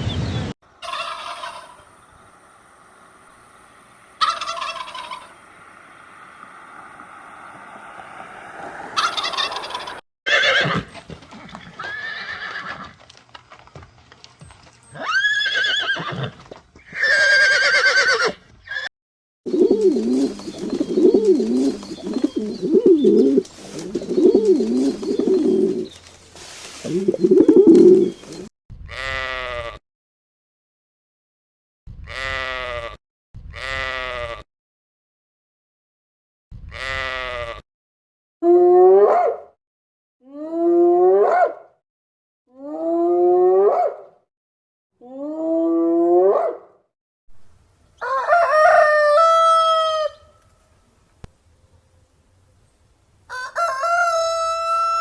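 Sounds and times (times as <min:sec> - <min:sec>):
farm animal calls: 0:00.8 - 0:02.2, 0:04.2 - 0:05.5, 0:08.9 - 0:10.9.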